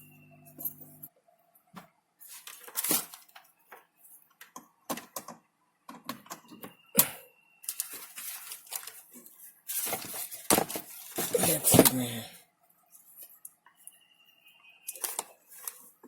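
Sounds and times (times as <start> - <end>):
laptop and hard parts clattering: 2.5 - 12.1.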